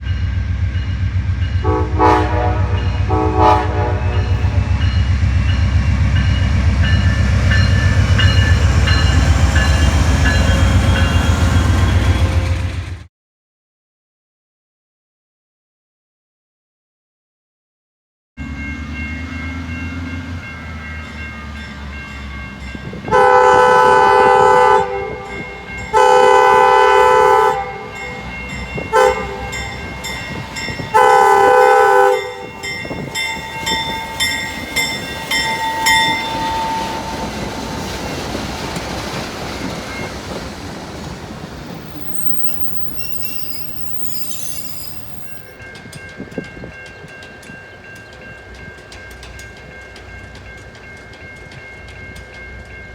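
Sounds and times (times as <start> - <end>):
train rumbling past: 0.0 - 13.1, 18.4 - 52.9
locomotive horn blasts: 1.6 - 4.6, 23.0 - 32.6
faint wheel squeal: 41.9 - 45.4.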